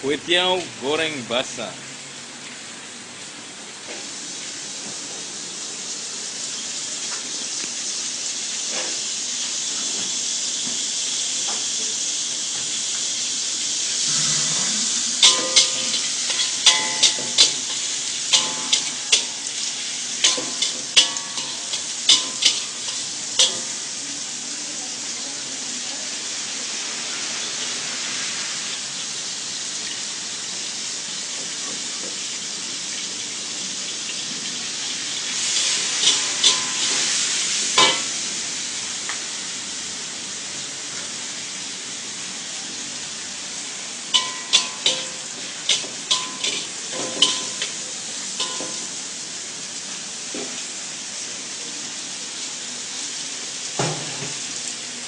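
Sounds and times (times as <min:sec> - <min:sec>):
noodles sizzling in a pan: 0:00.3 - 0:55.0
metal utensil clanking on a pan: 0:15.1 - 0:23.8, 0:35.4 - 0:38.2, 0:44.1 - 0:49.0.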